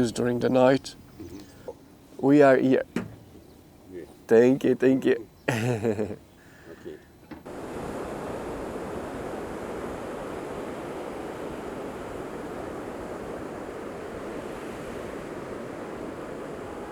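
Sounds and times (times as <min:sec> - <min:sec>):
ocean surf rushing: 0:05.1 - 0:16.9.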